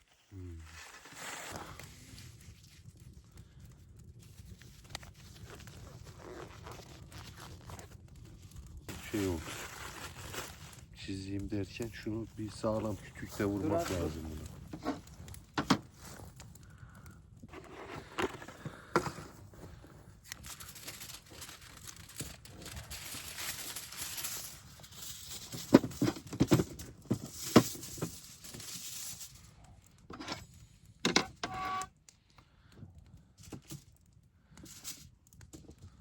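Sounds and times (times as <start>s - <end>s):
rustling and crinkling: 0.0s - 36.0s
squeaky scrape: 31.2s - 31.9s.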